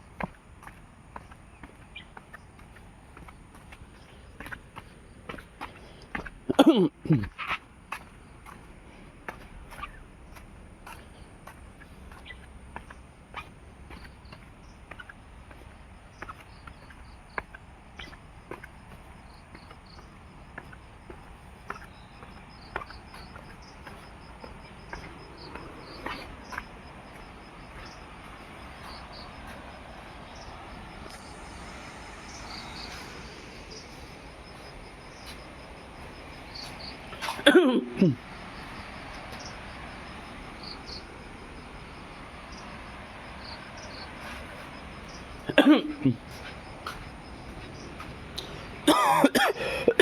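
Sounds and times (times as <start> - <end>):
insect chirping: 0.0 - 50.0
person sneezing: 6.5 - 7.3, 37.2 - 38.2, 45.5 - 46.2, 48.9 - 50.0.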